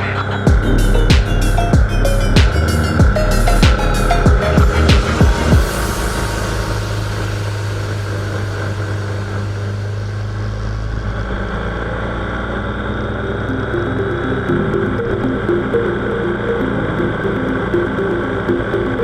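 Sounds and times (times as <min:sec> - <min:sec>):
music: 0:00.0 - 0:10.8, 0:13.4 - 0:19.0
motorcycle engine running: 0:00.5 - 0:13.7.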